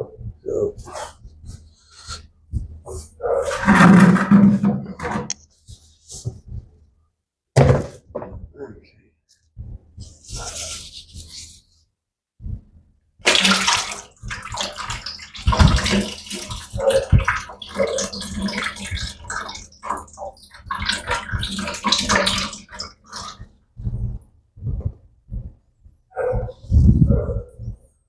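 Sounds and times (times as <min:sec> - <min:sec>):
fluid pouring and splashing: 0:13.2 - 0:23.5.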